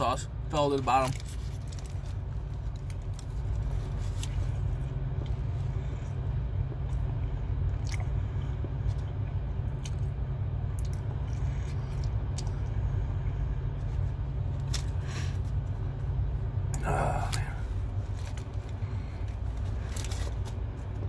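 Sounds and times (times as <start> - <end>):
steady low rumble: 0.0 - 21.0
paper wrapper crackling: 0.7 - 4.6, 19.4 - 21.0
man chewing food: 1.2 - 21.0.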